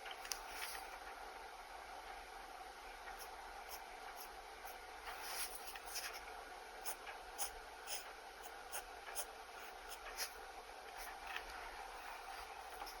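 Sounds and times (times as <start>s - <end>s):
pen scratching on paper: 3.2s - 6.2s, 6.8s - 11.2s, 11.9s - 13.0s.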